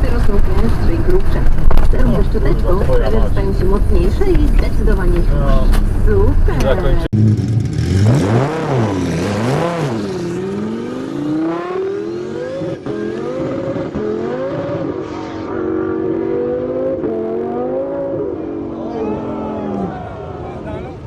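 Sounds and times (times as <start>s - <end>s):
sports car engine revving: 4.6s - 20.0s.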